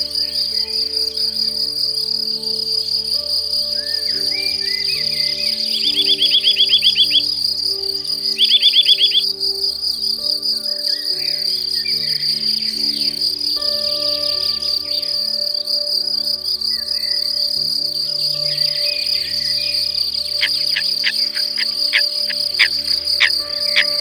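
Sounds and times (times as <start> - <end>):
high-pitched insect trill: 0.0 - 24.0
soft music of held chords: 0.0 - 24.0
rapid repeated chirps: 20.3 - 24.0.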